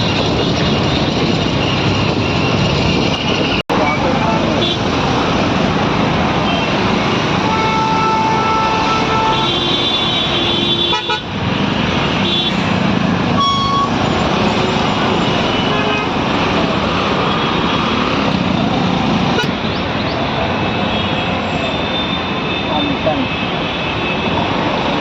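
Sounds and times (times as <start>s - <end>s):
traffic din: 0.0s - 25.0s
car horn toots: 6.4s - 11.3s, 12.2s - 12.8s, 13.4s - 16.8s, 18.7s - 19.5s.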